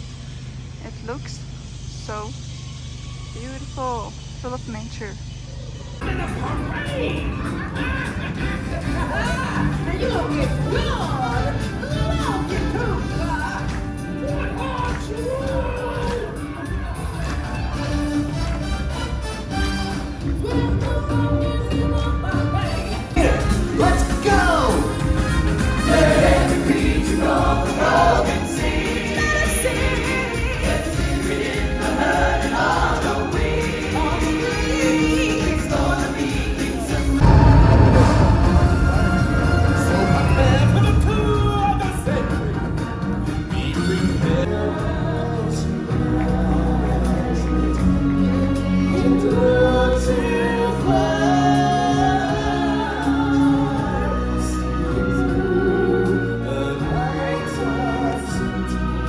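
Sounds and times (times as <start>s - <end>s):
choir singing with music: 6.0s - 59.0s
low rumble: 36.8s - 47.2s.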